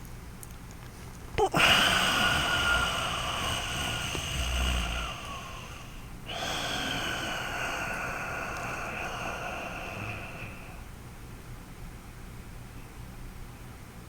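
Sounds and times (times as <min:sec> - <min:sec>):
breathing through the nose: 0:01.4 - 0:11.0.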